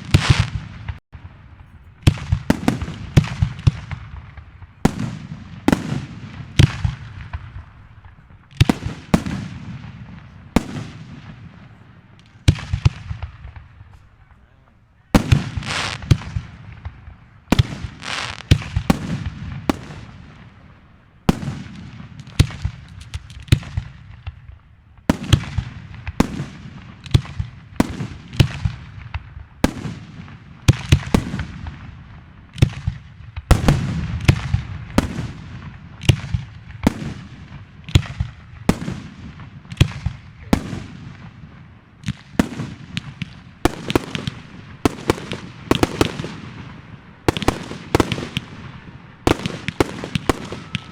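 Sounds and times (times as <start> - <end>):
fireworks bangs: 0.0 - 50.9.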